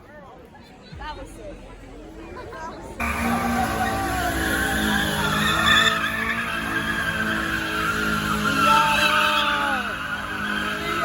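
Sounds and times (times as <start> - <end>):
car engine at high revs: 3.0 - 11.0
tires screeching: 3.0 - 11.0.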